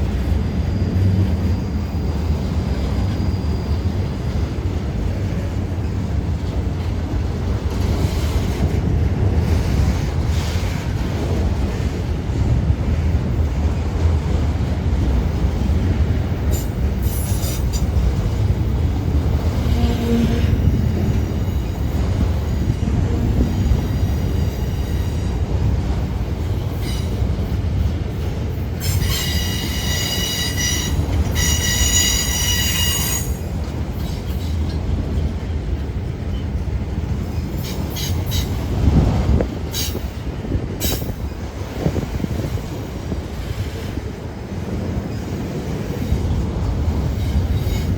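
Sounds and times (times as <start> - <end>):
freight train wheels rumbling: 0.0 - 47.9
loud high squeal: 28.9 - 33.4.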